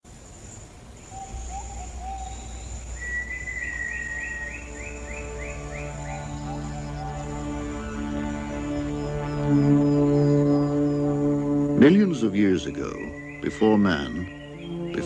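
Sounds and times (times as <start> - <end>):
high insect buzz: 0.1 - 15.0
bird calls: 0.3 - 15.0
low drone: 1.4 - 15.0
low whistled notes: 1.4 - 15.0
sustained low musical notes: 3.2 - 15.0.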